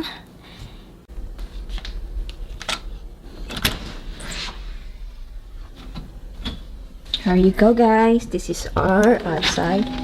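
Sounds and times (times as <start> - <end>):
low steady rumble: 1.0 - 10.0.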